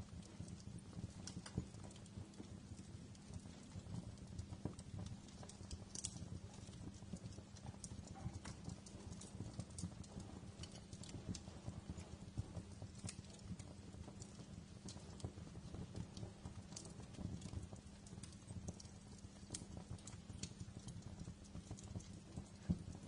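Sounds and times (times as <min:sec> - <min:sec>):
low rumble of flames: 0:00.0 - 0:23.0
wood fire crackling: 0:00.0 - 0:23.0.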